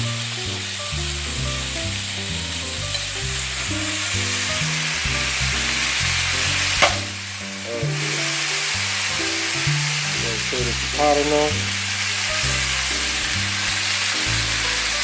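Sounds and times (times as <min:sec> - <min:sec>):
chicken sizzling in oil: 0:00.0 - 0:15.0
sharp knock: 0:06.8 - 0:07.2.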